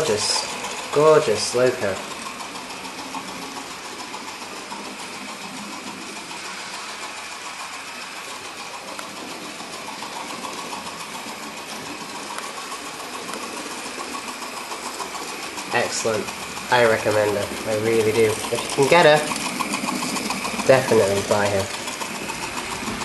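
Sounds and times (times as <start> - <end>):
model train running with clicking: 0.0 - 23.0.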